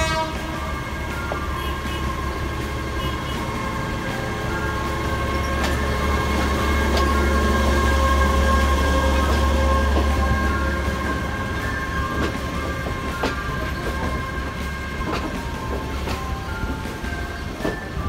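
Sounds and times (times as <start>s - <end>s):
diesel train engine drone: 0.0s - 18.0s
wheels clicking over rail joints: 0.0s - 18.0s.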